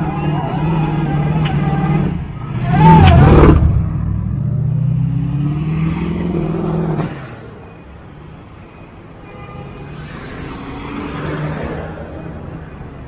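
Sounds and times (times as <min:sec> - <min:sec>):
car engine revving and accelerating: 0:00.4 - 0:07.2.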